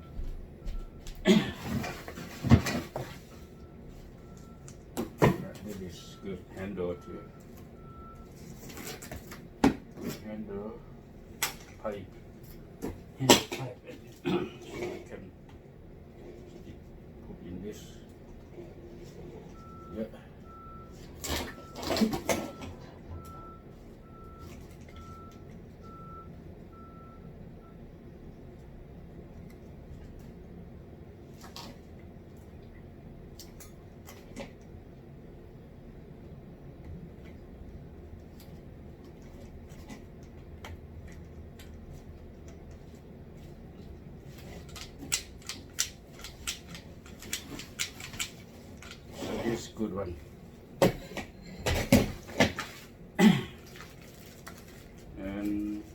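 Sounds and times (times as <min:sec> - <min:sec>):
vehicle reversing alarm beeping: 0:00.0 - 0:01.2, 0:02.6 - 0:09.0, 0:17.3 - 0:29.0
steady low hum: 0:00.0 - 0:55.9
parts knocking and clattering: 0:01.6 - 0:03.3, 0:44.2 - 0:49.2, 0:50.7 - 0:52.9
packaging rustling: 0:53.7 - 0:55.2.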